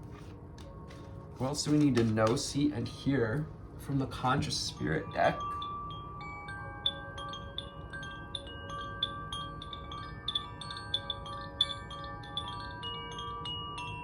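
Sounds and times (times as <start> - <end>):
wind chimes ringing: 4.5 - 14.0.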